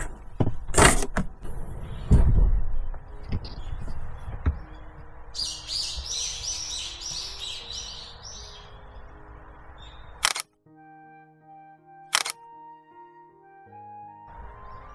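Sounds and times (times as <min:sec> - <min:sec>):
steady low hiss: 0:02.2 - 0:10.2
songbird singing high notes: 0:05.4 - 0:10.3
sharp click: 0:10.2 - 0:10.5, 0:12.1 - 0:12.4.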